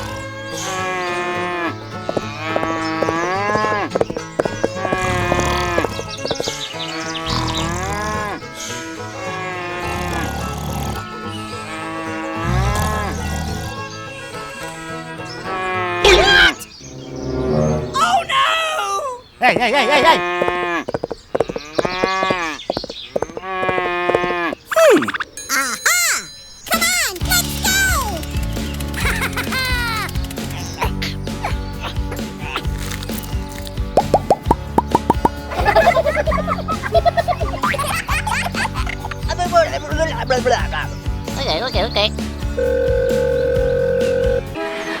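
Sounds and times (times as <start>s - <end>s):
cattle mooing: 0.0s - 14.4s, 15.4s - 16.6s, 19.7s - 24.7s
animal calls rising and falling: 15.4s - 26.4s, 34.0s - 36.4s
sharp clicks: 26.7s - 30.7s.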